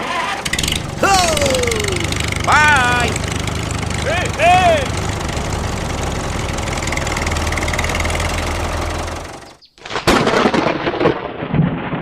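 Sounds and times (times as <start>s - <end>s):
small engine running: 0.1s - 9.6s.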